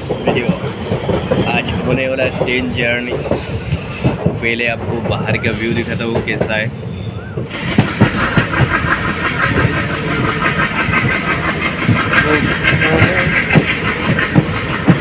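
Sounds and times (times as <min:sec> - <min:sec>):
train wheels clattering on rails: 0:00.0 - 0:15.0
low knocks from the track: 0:13.4 - 0:15.0.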